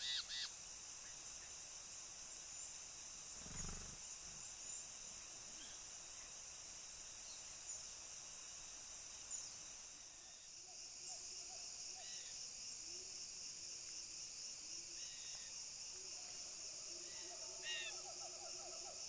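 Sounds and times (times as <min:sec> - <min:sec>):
faint short bird calls: 0:00.0 - 0:00.5
high-pitched insect drone: 0:03.2 - 0:04.8.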